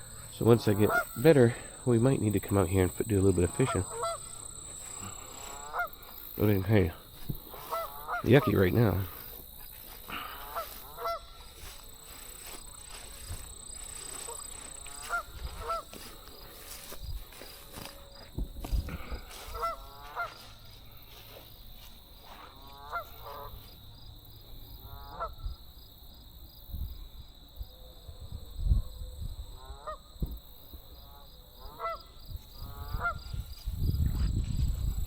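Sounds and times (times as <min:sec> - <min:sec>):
geese honking: 0:00.0 - 0:18.3, 0:18.9 - 0:23.7, 0:24.9 - 0:25.4, 0:31.1 - 0:33.4.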